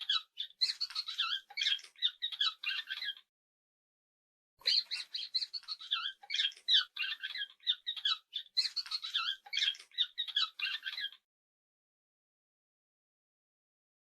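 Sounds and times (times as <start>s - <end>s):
small animal squeaking: 0.0s - 3.3s, 4.6s - 11.2s.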